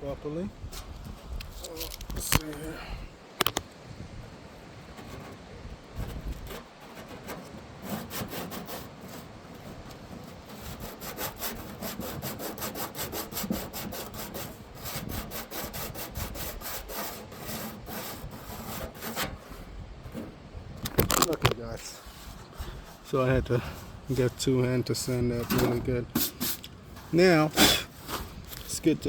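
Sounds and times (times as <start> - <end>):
sandpaper scrubbing metal: 6.5 - 19.6.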